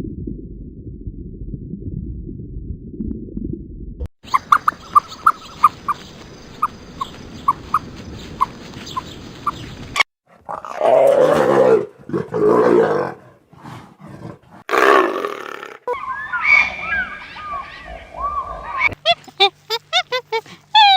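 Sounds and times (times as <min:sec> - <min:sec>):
loud drawn-out animal calls: 0:04.3 - 0:09.6, 0:14.7 - 0:19.0.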